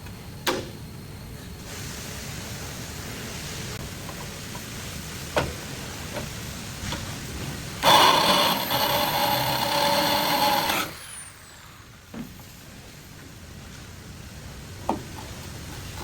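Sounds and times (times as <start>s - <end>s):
power tool whining: 7.8s - 11.8s.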